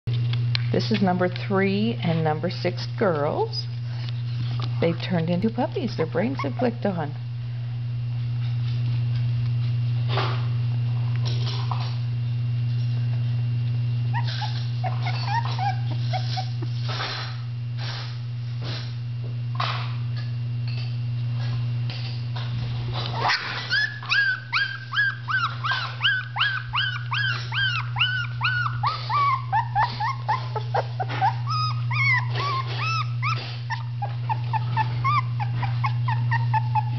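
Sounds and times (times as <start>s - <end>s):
puppies whimpering and squealing: 6.0s - 6.9s, 14.1s - 16.8s, 23.1s - 36.9s.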